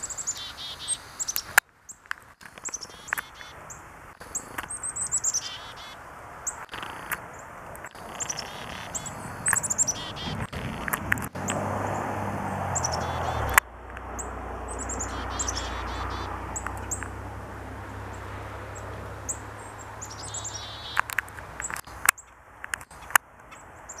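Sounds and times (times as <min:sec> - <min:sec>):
songbirds chirping: 0:00.0 - 0:24.0
sharp clicks: 0:01.3 - 0:03.5, 0:04.1 - 0:04.8, 0:06.6 - 0:11.6, 0:12.9 - 0:14.1, 0:16.6 - 0:17.2, 0:20.2 - 0:23.6.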